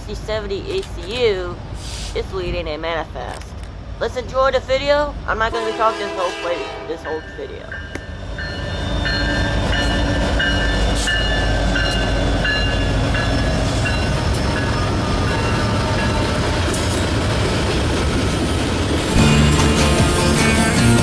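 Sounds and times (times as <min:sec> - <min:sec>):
freight train wheels rumbling: 0:00.0 - 0:21.0
music: 0:19.0 - 0:21.0.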